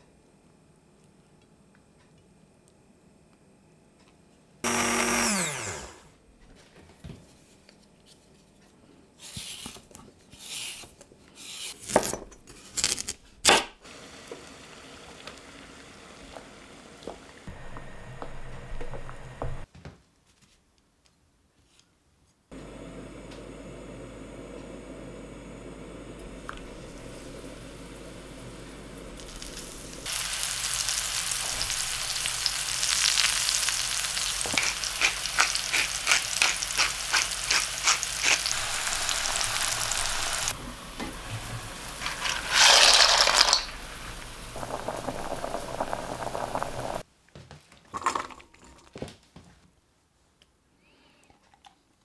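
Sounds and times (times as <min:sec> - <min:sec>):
food sizzling in oil: 0:26.3 - 0:47.0
oil crackles: 0:26.4 - 0:47.0.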